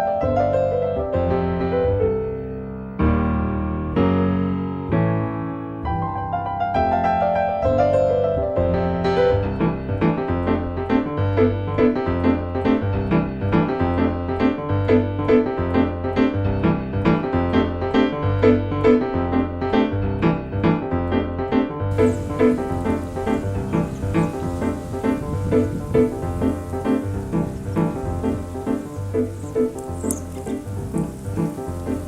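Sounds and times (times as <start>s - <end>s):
piano repeated notes: 0.0s - 32.0s
pulsing bass: 8.5s - 32.0s.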